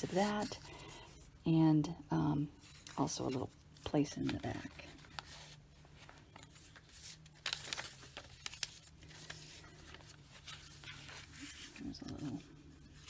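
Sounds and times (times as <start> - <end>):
paper pages rustling: 0.0 - 1.2, 2.6 - 13.0.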